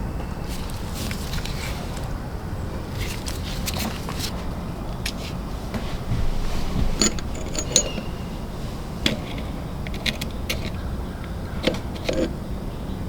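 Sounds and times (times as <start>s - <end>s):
steady low hum: 0.0s - 13.0s
metal wrench clicking and tapping: 7.0s - 8.1s, 11.6s - 12.4s.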